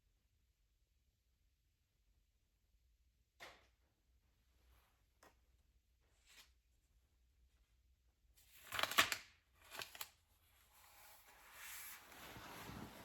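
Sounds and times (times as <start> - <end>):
book page turning: 8.5 - 13.0.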